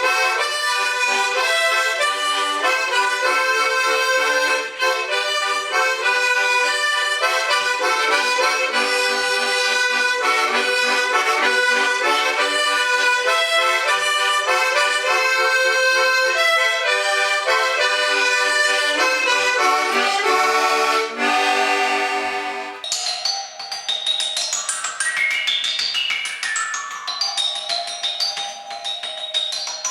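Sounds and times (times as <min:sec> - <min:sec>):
reed pipes playing folk melody: 0:00.0 - 0:22.8.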